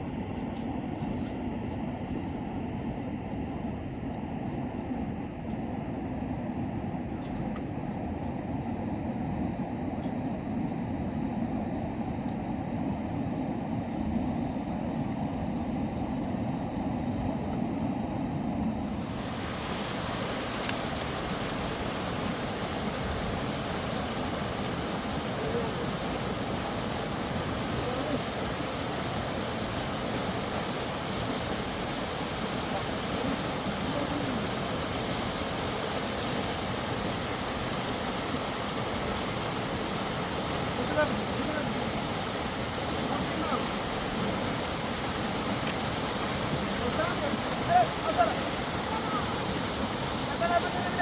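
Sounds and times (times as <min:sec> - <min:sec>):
mountain river rushing: 0:18.7 - 0:51.0.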